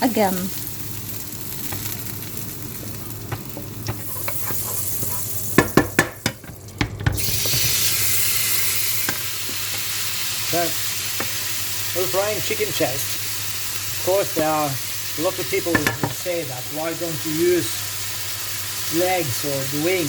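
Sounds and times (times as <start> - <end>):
chicken sizzling in a pan: 0.0 - 20.0
utensil knocking against pan: 5.6 - 7.6, 15.7 - 16.2.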